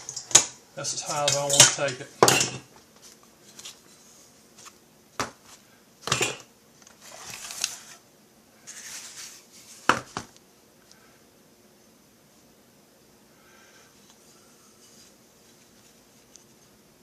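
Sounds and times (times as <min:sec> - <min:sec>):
soft scraping and rustling: 0:08.6 - 0:09.9, 0:14.0 - 0:16.7.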